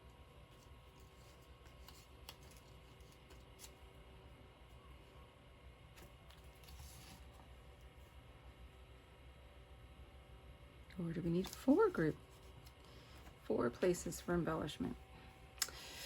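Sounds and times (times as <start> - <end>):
paper rustle: 0.5 - 3.8, 6.0 - 7.4.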